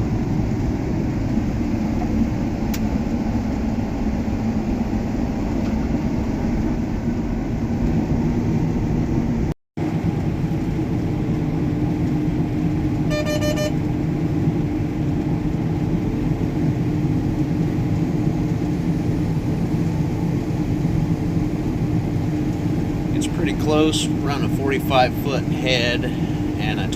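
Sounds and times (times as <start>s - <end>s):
combine harvester droning: 0.0s - 26.9s
high electronic beeps: 13.1s - 13.8s.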